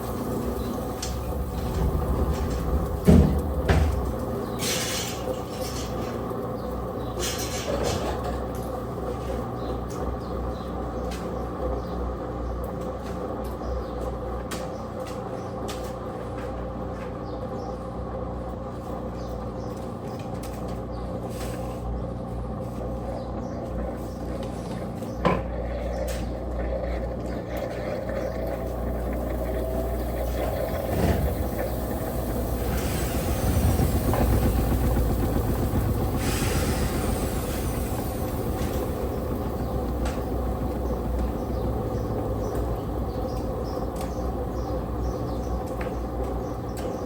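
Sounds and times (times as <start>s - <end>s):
washing machine motor hum: 0.0s - 13.4s, 22.9s - 47.0s
hiss: 30.6s - 34.6s, 35.9s - 38.9s.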